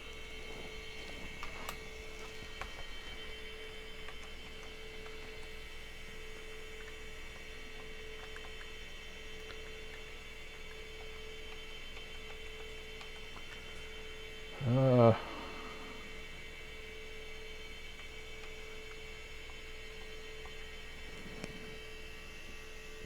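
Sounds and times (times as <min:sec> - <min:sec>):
electrical hum with high whine: 0:00.0 - 0:23.0
faint clicks: 0:00.1 - 0:05.6, 0:06.3 - 0:14.0.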